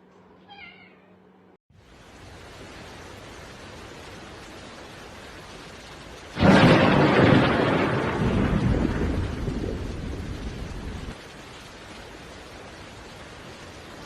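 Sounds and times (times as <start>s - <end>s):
loud rumbling crash: 6.4s - 9.8s.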